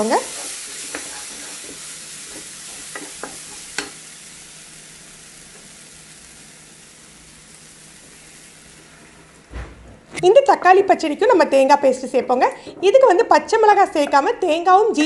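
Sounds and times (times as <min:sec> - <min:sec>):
vegetables sizzling in oil: 0:00.0 - 0:09.6.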